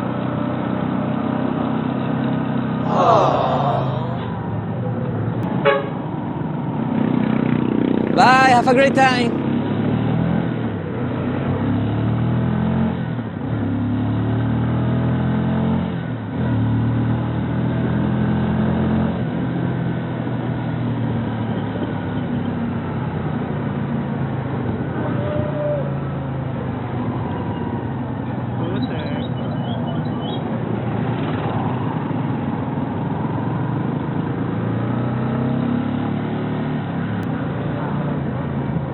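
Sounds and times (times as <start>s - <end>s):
road noise: 0.0s - 38.9s.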